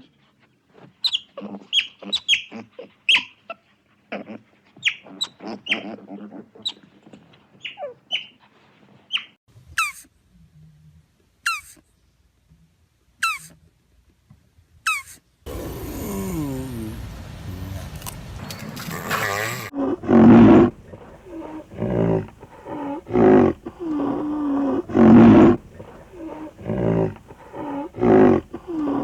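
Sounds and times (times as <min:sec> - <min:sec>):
squeaky animal calls: 0:04.8 - 0:06.0, 0:11.5 - 0:11.8, 0:13.2 - 0:13.5.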